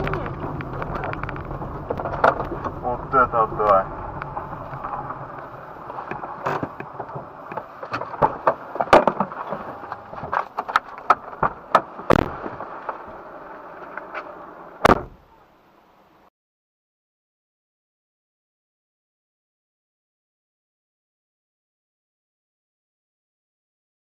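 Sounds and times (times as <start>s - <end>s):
steady background rumble: 0.0s - 16.3s.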